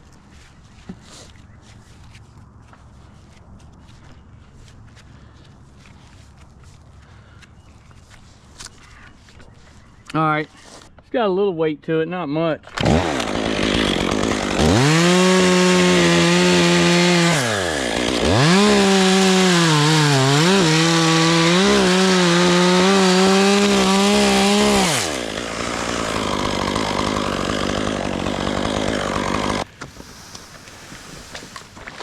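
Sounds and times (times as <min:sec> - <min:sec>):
chainsaw cutting wood: 0:12.7 - 0:32.0.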